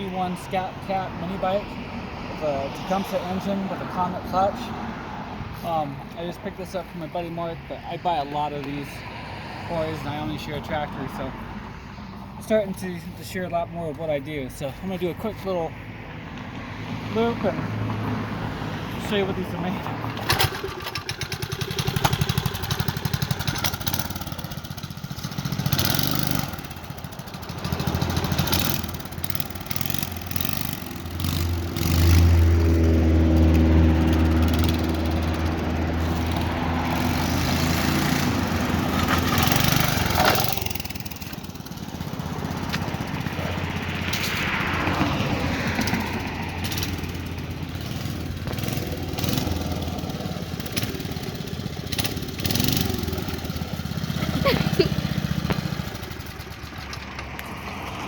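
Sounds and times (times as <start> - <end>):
small motorbike engine revving: 20.1 - 56.6.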